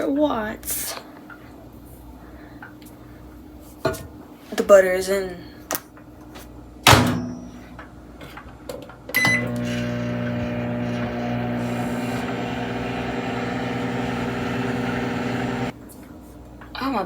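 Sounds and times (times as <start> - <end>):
microwave oven humming: 9.2 - 15.8.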